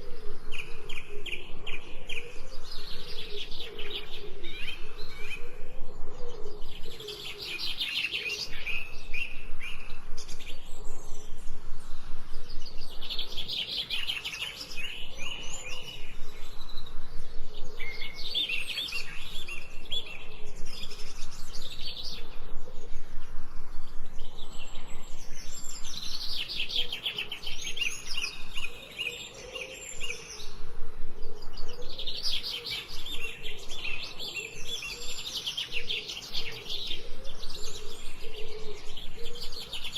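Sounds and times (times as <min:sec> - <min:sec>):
songbirds trilling: 0:00.0 - 0:39.9.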